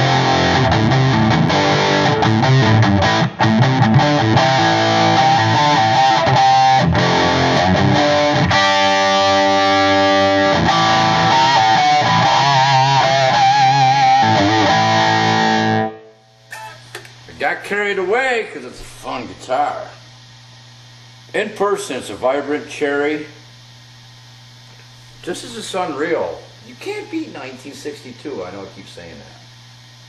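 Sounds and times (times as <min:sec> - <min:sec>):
electric guitar playing: 0:00.0 - 0:17.0.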